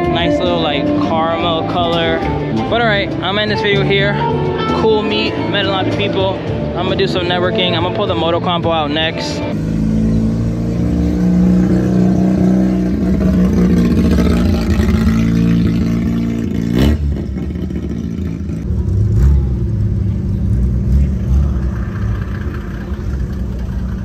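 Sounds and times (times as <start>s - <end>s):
car engines running: 0.0s - 24.0s
engine revving: 9.4s - 24.0s.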